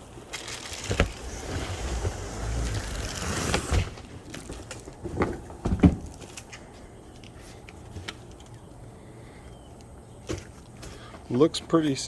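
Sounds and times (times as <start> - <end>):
packaging rustling: 0.2 - 5.2.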